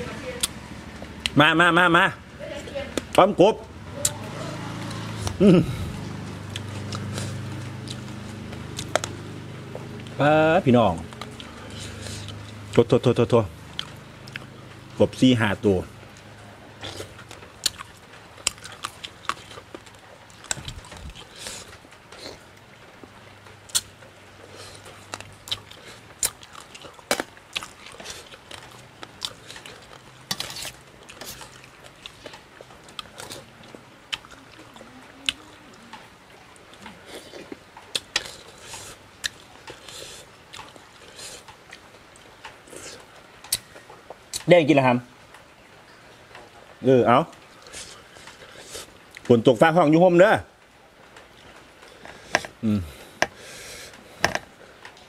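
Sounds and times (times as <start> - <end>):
person chewing food: 4.0 - 10.2, 10.9 - 12.8, 13.6 - 14.8, 16.1 - 44.5, 47.4 - 49.3, 51.2 - 55.0
wet clicks and crunches: 16.9 - 22.2, 40.6 - 44.5.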